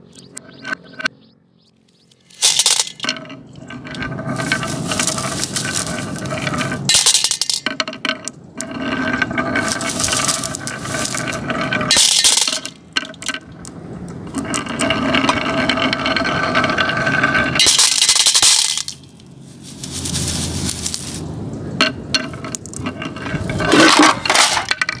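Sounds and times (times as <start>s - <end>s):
marbles clicking on track: 2.3s - 19.3s
marbles rolling down wooden track: 2.4s - 19.1s, 21.8s - 25.0s.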